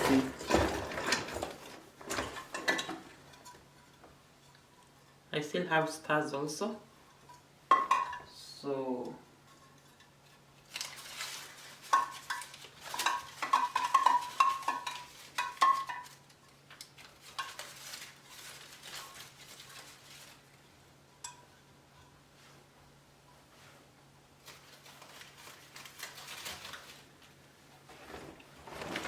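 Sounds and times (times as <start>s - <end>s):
soft rustling: 22.1s - 29.0s.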